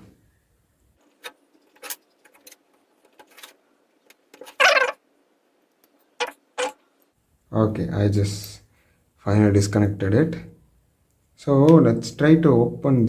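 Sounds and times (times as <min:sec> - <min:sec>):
squeak-like scrape: 0:04.4 - 0:05.0, 0:06.2 - 0:06.8.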